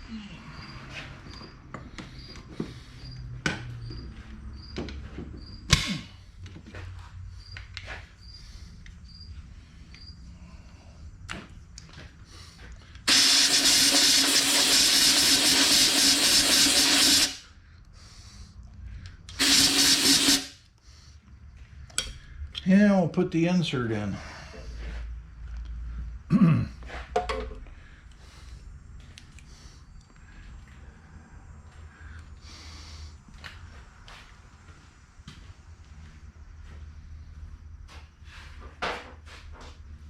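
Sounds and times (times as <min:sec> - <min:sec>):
cricket chirping: 0:00.0 - 0:17.3, 0:27.6 - 0:38.3
compressed air blow gun hissing: 0:13.1 - 0:17.4, 0:19.3 - 0:20.6.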